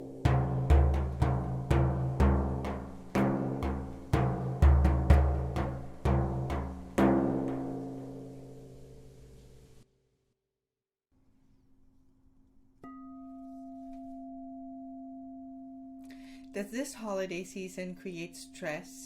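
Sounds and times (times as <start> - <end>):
deep drum beats ringing: 0.0 - 8.6.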